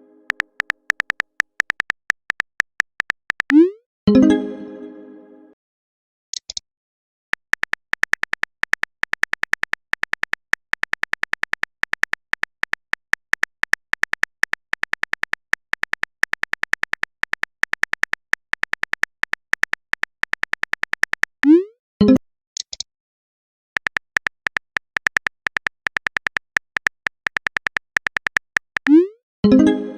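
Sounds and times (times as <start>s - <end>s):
phone keyboard typing clicks: 0.3s - 3.7s, 7.4s - 21.6s, 23.8s - 29.0s.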